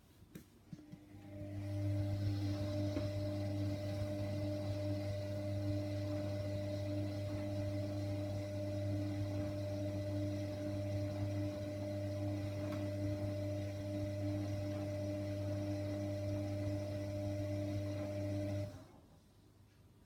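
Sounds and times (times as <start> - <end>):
washing machine motor humming: 0.8 - 19.0.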